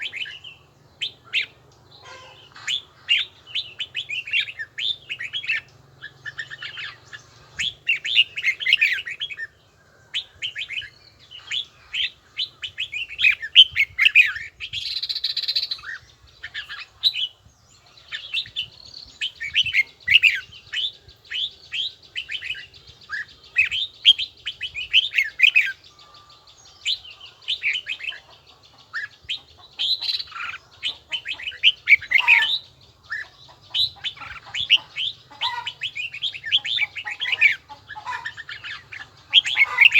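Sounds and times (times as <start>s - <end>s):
bird singing warbling phrases: 0.0s - 39.9s.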